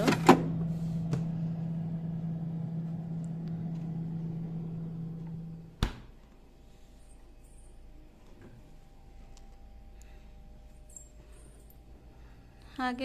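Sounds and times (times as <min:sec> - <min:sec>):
refrigerator humming: 0:00.0 - 0:13.0
door shutting thud: 0:05.8 - 0:06.1.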